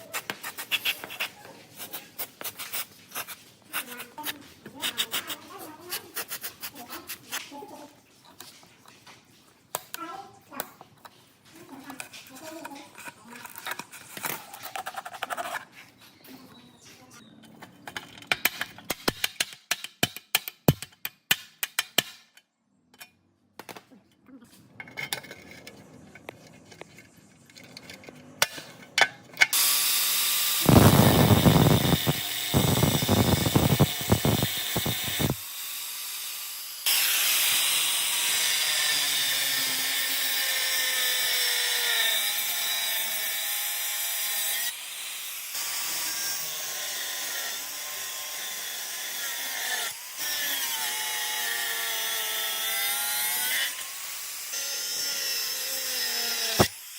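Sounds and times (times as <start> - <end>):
power tool grinding metal: 29.5 - 56.9.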